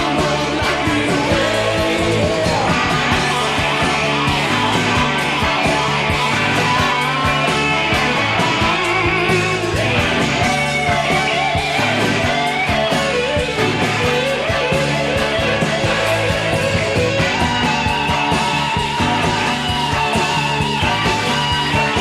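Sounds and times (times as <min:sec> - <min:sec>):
bending electric guitar lead: 0:00.0 - 0:22.0
hard rock band playing: 0:00.0 - 0:22.0.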